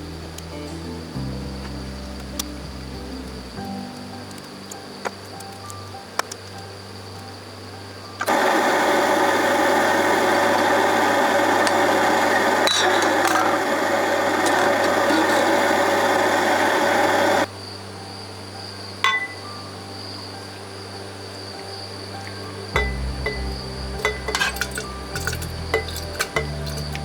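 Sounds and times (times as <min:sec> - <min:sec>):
power tool running: 0:08.3 - 0:17.5.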